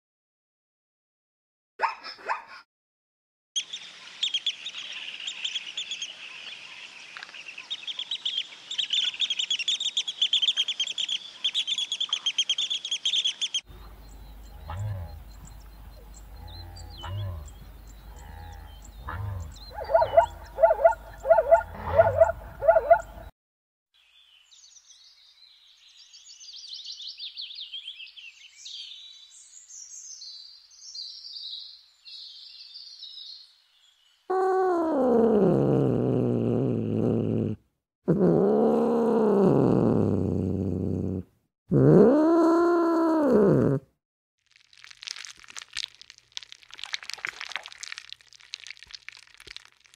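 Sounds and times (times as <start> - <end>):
birds chirping: 3.6 - 23.3
rhythmic pitched barking calls: 7.6 - 23.3
long sweeping animal calls: 11.6 - 23.3
soft crackle: 44.4 - 49.9.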